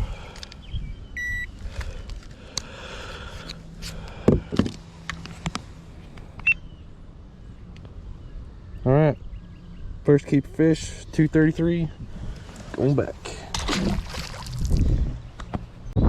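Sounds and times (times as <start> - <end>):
short electronic beep: 1.2 - 1.5.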